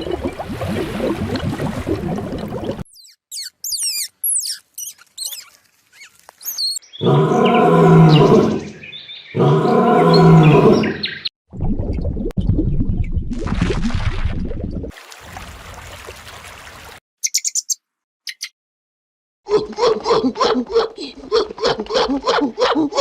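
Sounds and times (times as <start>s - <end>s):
high chirping whistles: 2.9s - 6.8s, 17.2s - 18.5s.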